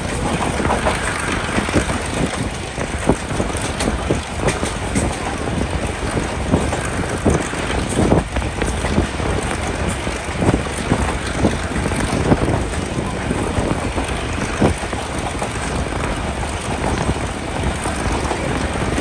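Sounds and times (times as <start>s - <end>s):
rushing air: 0.0s - 12.5s
train rumbling on track: 0.0s - 19.0s.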